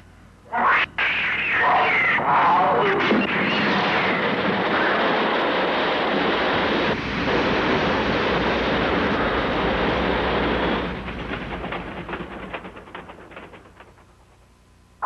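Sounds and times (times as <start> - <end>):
loud rushing noise: 3.0 - 12.8
rapid crackling: 3.3 - 14.5.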